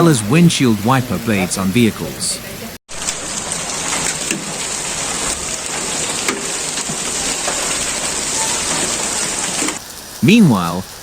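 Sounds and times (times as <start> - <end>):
heavy rain and hail: 0.1 - 11.0.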